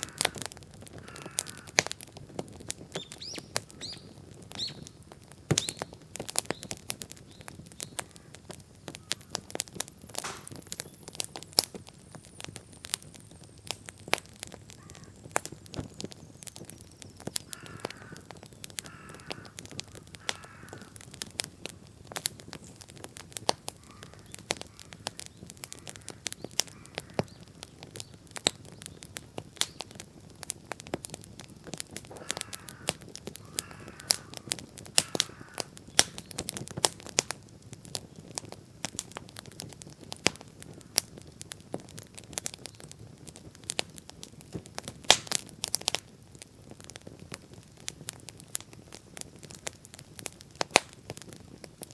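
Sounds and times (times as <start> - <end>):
bonfire crackling and popping: 0.0 - 51.9
bird calling: 14.7 - 15.3, 16.0 - 21.0.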